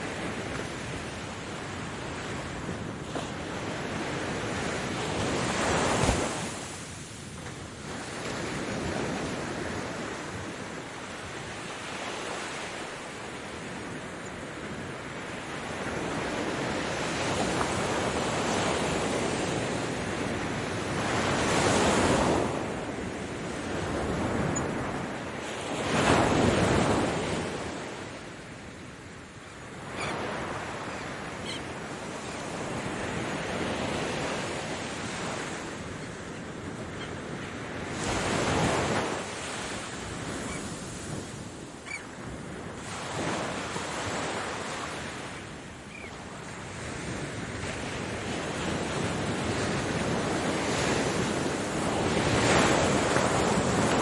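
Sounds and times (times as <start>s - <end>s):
ocean waves breaking on shore: 0.0s - 54.0s
wind on microphone: 0.0s - 54.0s.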